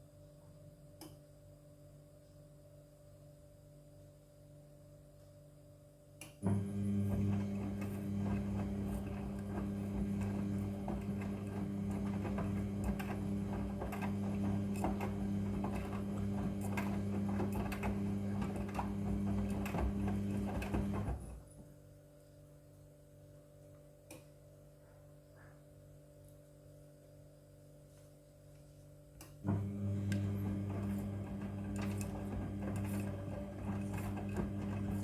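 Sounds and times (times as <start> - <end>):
washing machine humming: 6.4 - 21.6, 29.4 - 35.0.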